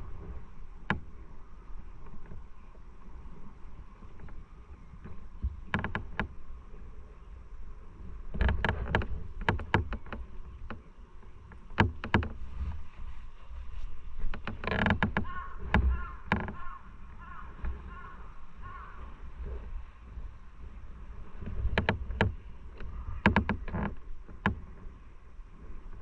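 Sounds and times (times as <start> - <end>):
low riding rumble: 0.0 - 26.0
sharp clicks and knocks: 5.0 - 6.3, 8.3 - 10.8, 11.5 - 12.4, 21.4 - 24.6.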